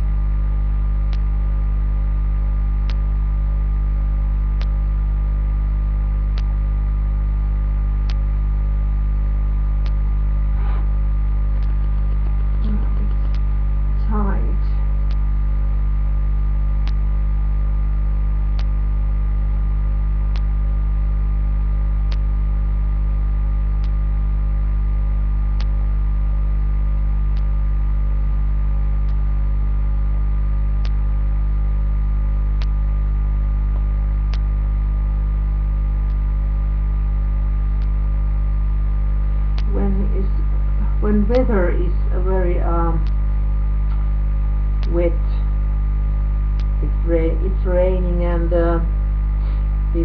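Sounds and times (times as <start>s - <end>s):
electrical mains hum: 0.0s - 50.0s
faint sharp clicks: 1.1s - 1.3s, 2.8s - 3.1s, 4.6s - 4.8s, 6.3s - 6.6s, 8.0s - 8.3s, 9.8s - 10.1s, 11.5s - 13.5s, 14.6s - 15.3s, 16.8s - 17.0s, 18.5s - 18.8s, 20.3s - 20.6s, 22.0s - 22.3s, 23.8s - 24.0s, 25.6s - 25.8s, 27.3s - 27.6s, 29.0s - 29.2s, 30.8s - 31.0s, 32.6s - 32.8s, 33.7s - 34.6s, 36.0s - 36.3s, 37.7s - 38.0s, 39.5s - 39.8s, 41.3s - 41.5s, 43.0s - 43.2s, 46.4s - 46.8s.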